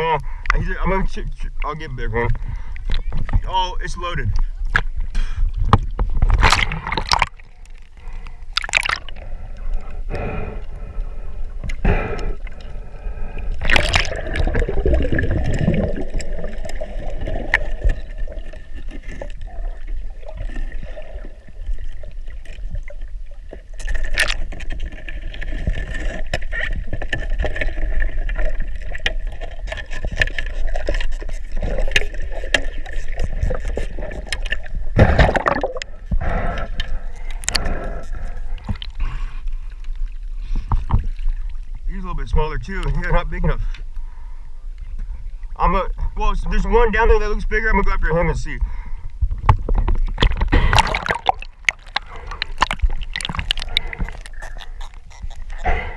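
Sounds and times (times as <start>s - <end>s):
water bubbling: 0.0s - 43.6s, 48.3s - 55.9s
water gurgling and sloshing: 0.0s - 55.9s.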